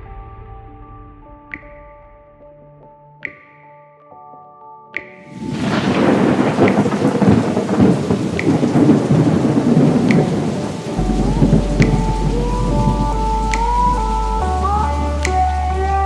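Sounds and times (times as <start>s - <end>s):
roll of thunder: 5.3s - 14.0s
heavy rain: 5.3s - 16.0s.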